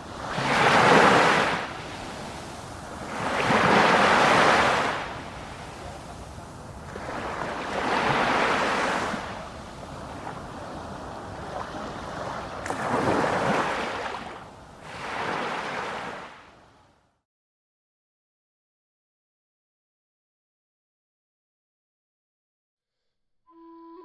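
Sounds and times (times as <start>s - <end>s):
sea waves washing in: 0.0s - 16.9s.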